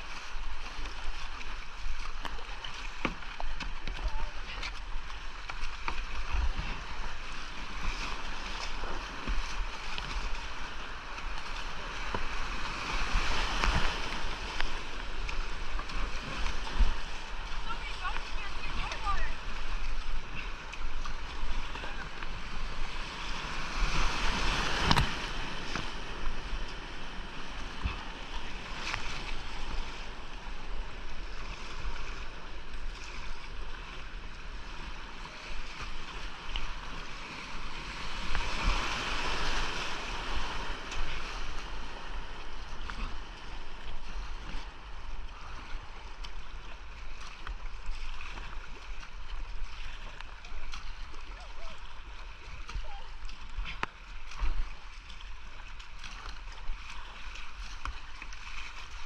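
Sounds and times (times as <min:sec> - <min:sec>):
whitewater rushing over rocks: 0:00.0 - 0:30.3.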